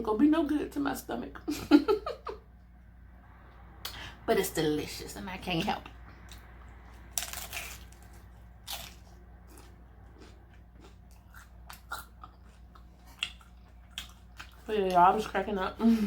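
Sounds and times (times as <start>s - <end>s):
crunchy taco shell bite: 7.1s - 12.4s.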